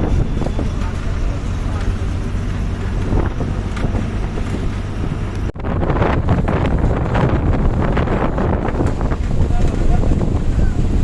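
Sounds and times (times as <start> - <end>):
low rumble of moving bus: 0.0 - 11.0
wind buffeting microphone: 0.0 - 11.0.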